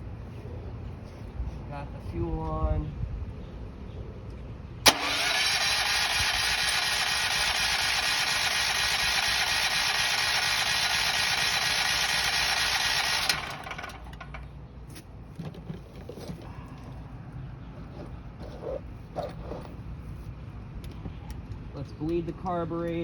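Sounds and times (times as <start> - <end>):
electric starter cranking engine: 4.9 - 14.5.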